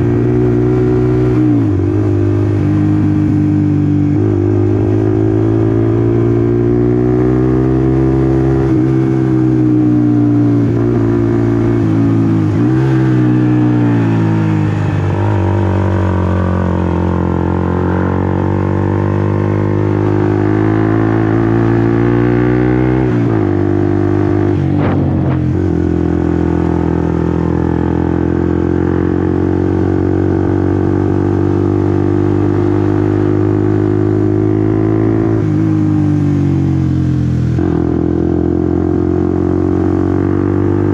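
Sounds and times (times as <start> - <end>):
motorcycle engine revving: 0.0 - 40.9
brief sharp sound: 24.6 - 25.8.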